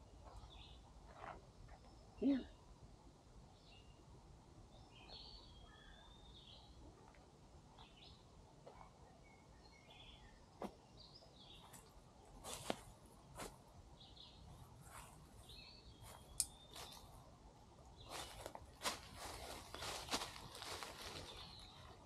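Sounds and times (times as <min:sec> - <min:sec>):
quiet outdoor ambience: 0:00.0 - 0:22.0
faint bird chirps: 0:00.2 - 0:02.7, 0:04.8 - 0:07.0.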